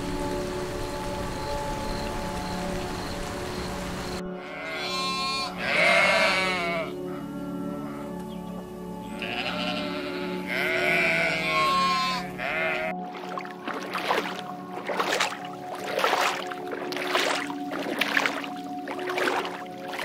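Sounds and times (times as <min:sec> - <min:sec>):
background music: 0:00.0 - 0:20.0
animal bleating: 0:04.4 - 0:07.2, 0:09.1 - 0:13.0.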